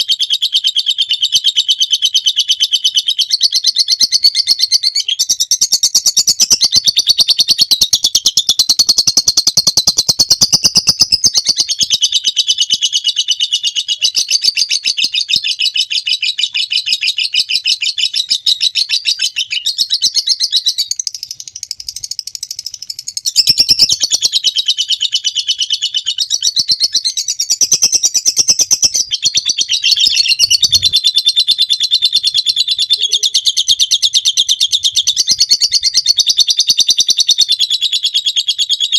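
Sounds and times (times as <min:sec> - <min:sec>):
lovebird rapid high chatter: 0:06.1 - 0:13.0, 0:21.0 - 0:26.1, 0:27.0 - 0:37.0.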